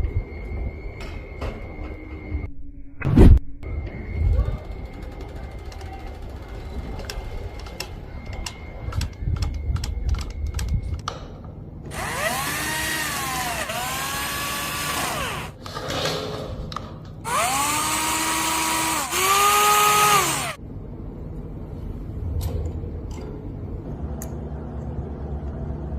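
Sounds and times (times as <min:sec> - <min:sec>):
power drill whining: 0:11.9 - 0:15.6, 0:17.3 - 0:20.6.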